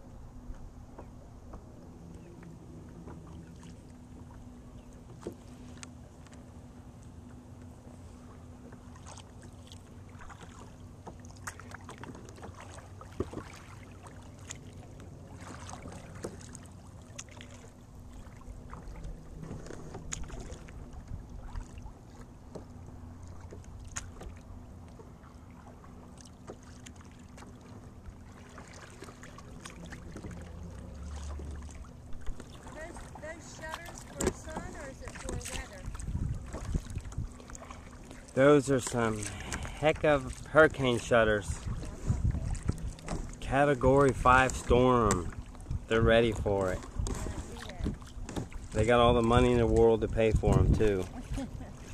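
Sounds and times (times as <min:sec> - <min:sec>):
paddle dipping and dripping: 0:00.5 - 0:51.9
small splashes: 0:08.8 - 0:45.7, 0:46.5 - 0:50.0.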